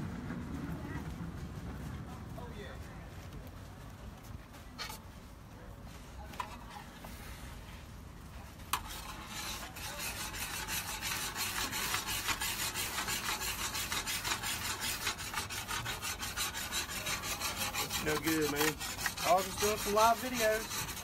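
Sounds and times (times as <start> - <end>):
metal spatula scraping hot surface: 8.7 - 21.0.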